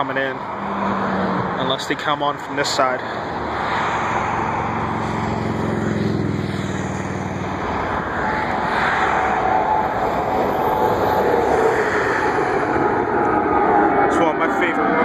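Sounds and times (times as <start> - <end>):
high engine whine: 0.0 - 15.0
jet engines rushing: 0.0 - 15.0.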